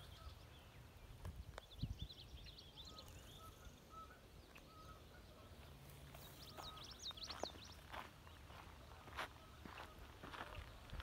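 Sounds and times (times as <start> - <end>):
low wind rumble: 0.0 - 4.4
small birds chirping: 0.0 - 11.0.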